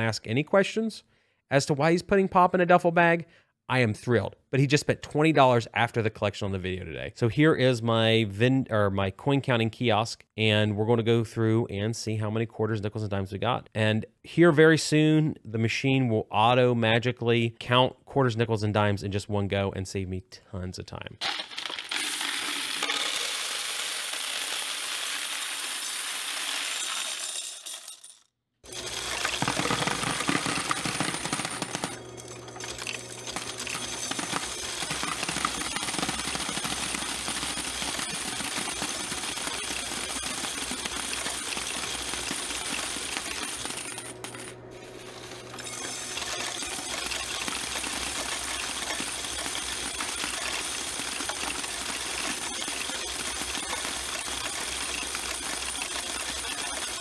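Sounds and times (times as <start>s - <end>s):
coins clattering through sorter: 21.2s - 57.0s
motor hum: 28.6s - 57.0s.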